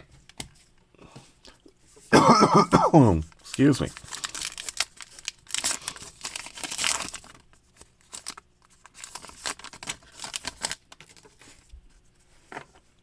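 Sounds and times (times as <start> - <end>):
wrapper tearing and crinkling: 3.3 - 11.5.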